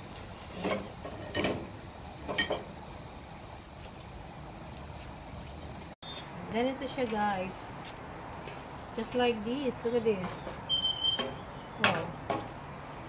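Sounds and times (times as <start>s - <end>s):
food sizzling in oil: 0.0s - 6.0s.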